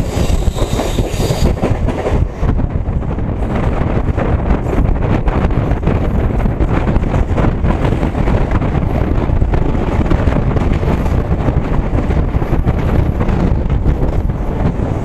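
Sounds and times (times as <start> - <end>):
train running noise: 0.0 - 15.0
wind buffeting microphone: 0.0 - 15.0.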